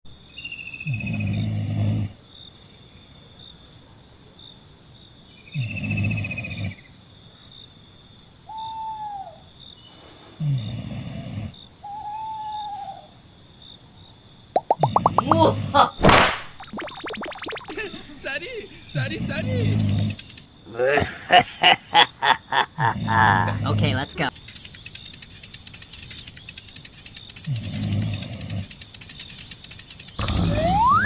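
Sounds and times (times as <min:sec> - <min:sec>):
deep hooting animal calls: 0:08.4 - 0:09.5, 0:11.8 - 0:13.2, 0:26.0 - 0:31.0
short arching whistled calls: 0:08.4 - 0:09.9, 0:11.8 - 0:13.2, 0:24.3 - 0:31.0.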